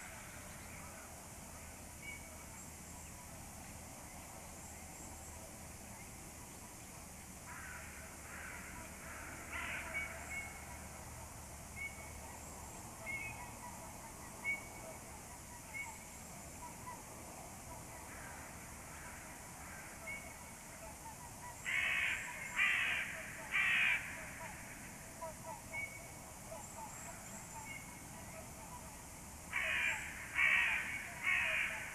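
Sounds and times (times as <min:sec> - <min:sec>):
crows cawing: 0:07.5 - 0:10.6, 0:21.6 - 0:24.8, 0:29.5 - 0:31.9.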